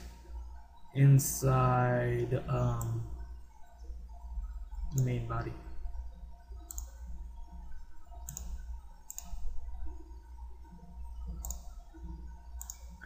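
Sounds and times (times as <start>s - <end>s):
low steady hum: 0.0s - 13.0s
computer mouse clicking: 6.6s - 7.0s, 8.2s - 10.0s, 11.3s - 13.0s.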